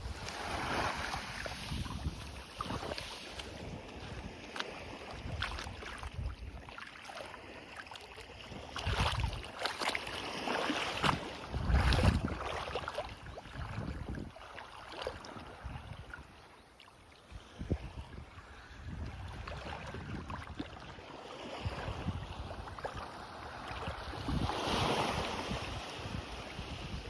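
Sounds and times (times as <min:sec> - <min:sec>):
wind buffeting microphone: 0:00.0 - 0:06.7, 0:08.5 - 0:09.6, 0:10.3 - 0:14.4, 0:17.4 - 0:27.0
waves washing on beach: 0:00.0 - 0:16.4, 0:17.2 - 0:27.0.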